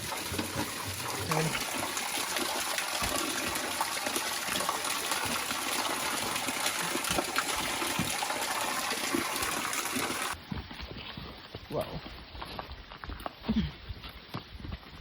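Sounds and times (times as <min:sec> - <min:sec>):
spring water rushing: 0:00.0 - 0:10.4.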